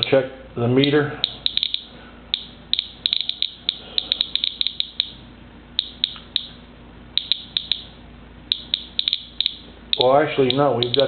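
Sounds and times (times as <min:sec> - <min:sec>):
geiger counter clicking: 0:00.8 - 0:05.2, 0:05.8 - 0:06.6, 0:07.2 - 0:07.9, 0:08.5 - 0:11.0.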